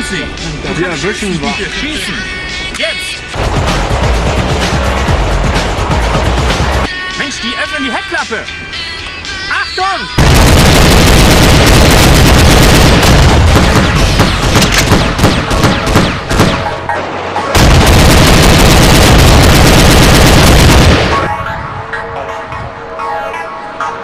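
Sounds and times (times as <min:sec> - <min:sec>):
rapid automatic gunfire: 0:10.2 - 0:16.7, 0:17.6 - 0:21.3.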